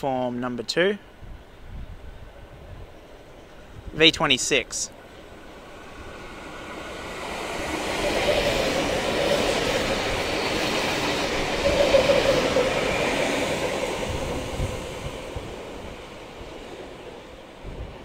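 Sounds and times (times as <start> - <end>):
electric train passing: 1.1 - 18.0
wheel and rail noise: 4.9 - 18.0.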